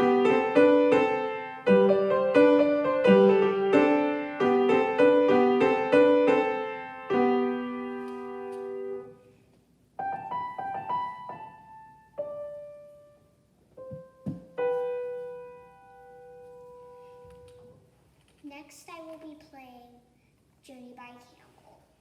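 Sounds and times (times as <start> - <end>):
solo piano playing: 0.0 - 9.2, 10.0 - 17.8.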